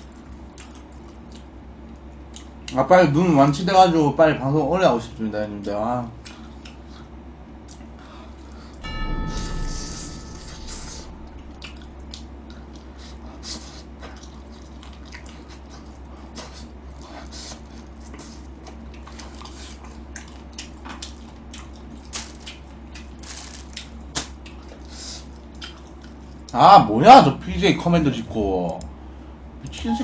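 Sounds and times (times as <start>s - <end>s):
wet chewing and lip-smacking: 0.0s - 2.8s, 6.2s - 8.0s, 12.1s - 26.6s
steady low hum: 0.0s - 30.0s.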